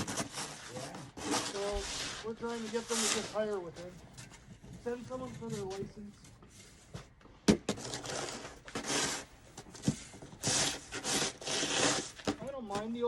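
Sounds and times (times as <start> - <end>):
snow shovel scraping snow: 0.0 - 3.9, 7.7 - 13.0.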